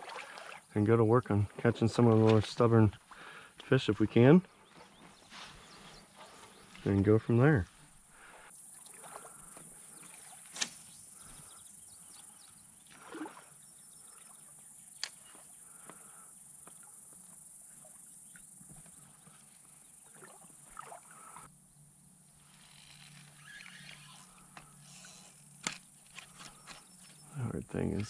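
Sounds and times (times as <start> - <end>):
high-pitched insect drone: 22.4 - 27.9.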